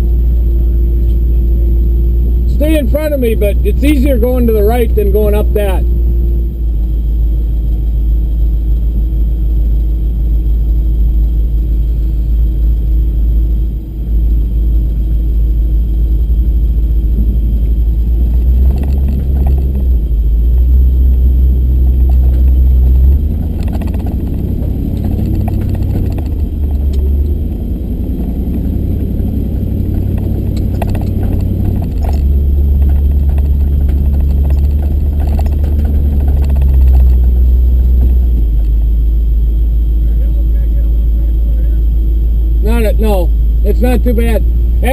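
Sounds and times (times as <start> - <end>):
truck engine rumbling: 0.0 - 44.9
body rattles and knocks: 17.2 - 20.8, 21.7 - 27.5, 28.3 - 38.9.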